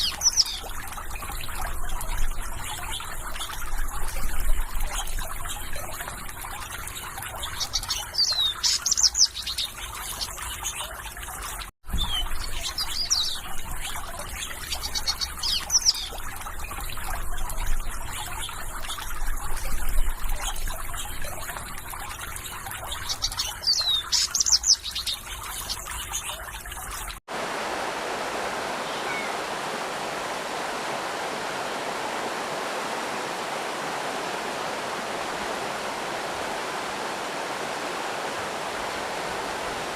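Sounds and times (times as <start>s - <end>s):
small birds chirping: 0.0s - 19.1s, 19.8s - 27.1s, 28.7s - 29.5s
water trickling: 0.0s - 39.9s
waterfall rushing: 27.3s - 39.9s.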